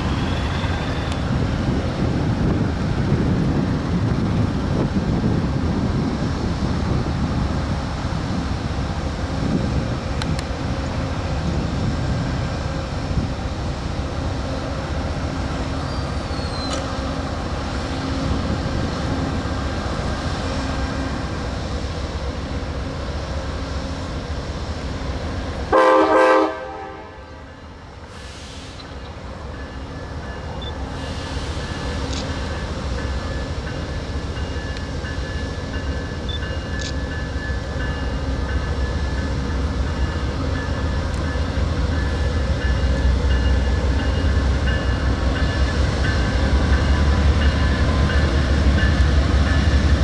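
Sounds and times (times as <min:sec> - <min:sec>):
freight train rumbling past: 0:00.0 - 0:50.0
train air horn blast: 0:25.7 - 0:28.8.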